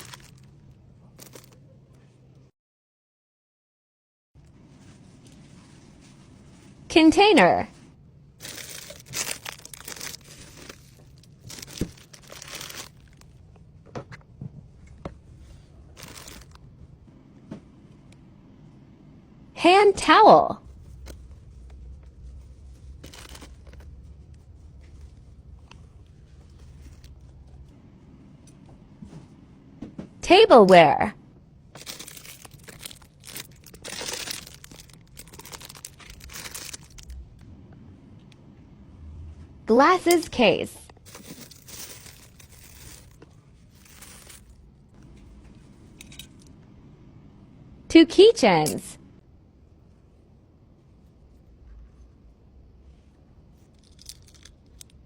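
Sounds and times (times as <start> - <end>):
plastic packaging crinkling: 0.0 - 0.5, 8.4 - 13.4, 16.0 - 16.6, 31.8 - 37.2.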